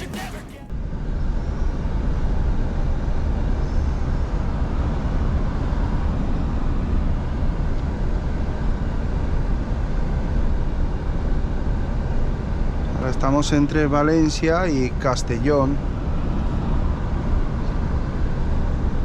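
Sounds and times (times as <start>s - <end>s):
truck engine drone: 0.0s - 0.7s.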